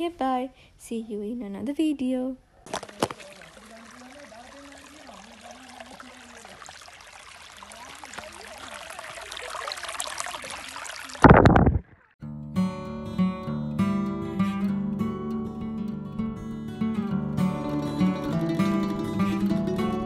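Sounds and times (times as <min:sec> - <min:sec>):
rushing water: 0:02.6 - 0:12.1.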